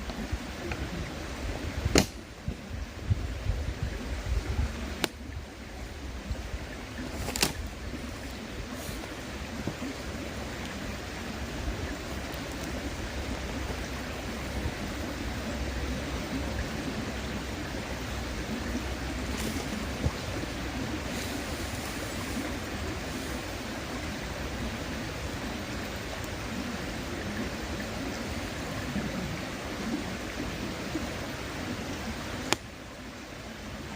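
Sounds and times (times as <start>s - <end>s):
river murmuring: 0.0s - 33.9s
campfire pops: 1.8s - 2.6s, 5.0s - 5.3s, 7.1s - 8.0s, 12.2s - 12.8s, 32.4s - 32.7s.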